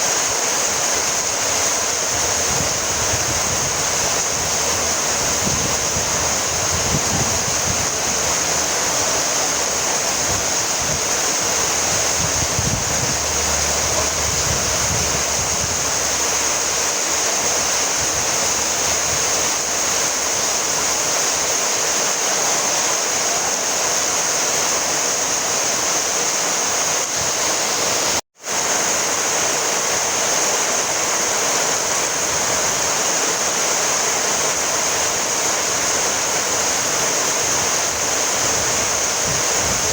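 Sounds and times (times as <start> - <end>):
steady rainfall: 0.0 - 39.9
low rumble: 11.8 - 16.8.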